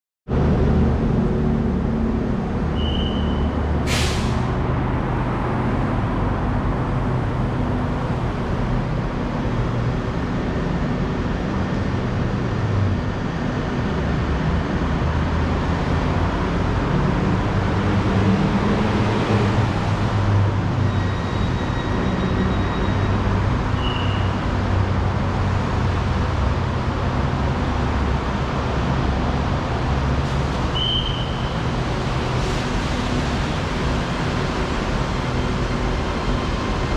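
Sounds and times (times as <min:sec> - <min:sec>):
moving vehicle rumble: 0:00.3 - 0:36.9
sharp brief hiss: 0:03.9 - 0:04.5.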